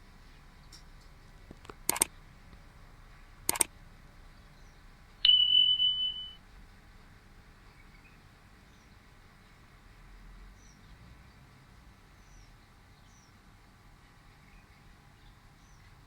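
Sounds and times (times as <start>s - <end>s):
short sharp clicks: 1.6s - 2.1s, 3.5s - 3.7s
high-pitched electronic beep: 5.2s - 6.4s.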